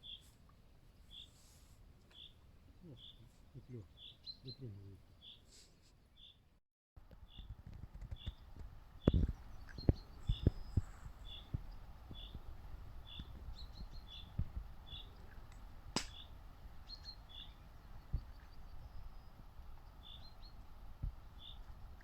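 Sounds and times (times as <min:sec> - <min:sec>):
small bird chirping: 0:00.0 - 0:00.3, 0:01.0 - 0:06.4, 0:07.2 - 0:15.4, 0:16.0 - 0:20.6, 0:21.3 - 0:22.0
sharp click: 0:16.0 - 0:16.2.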